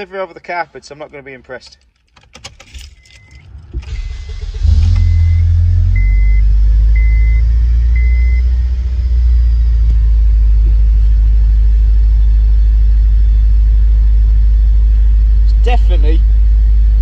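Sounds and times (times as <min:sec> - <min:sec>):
car engine starting and idling: 0:00.0 - 0:17.0
beeping: 0:02.8 - 0:08.6.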